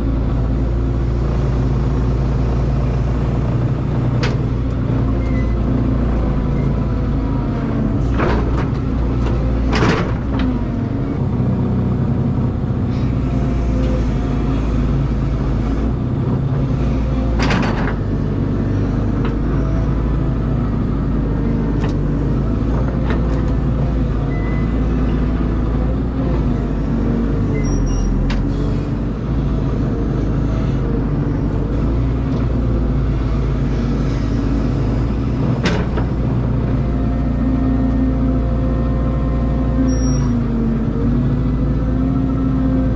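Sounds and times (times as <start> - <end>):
excavator diesel engine running: 0.0 - 42.9
excavator knocks and clanks: 3.4 - 5.6, 7.5 - 11.5, 13.7 - 29.3, 30.3 - 37.1.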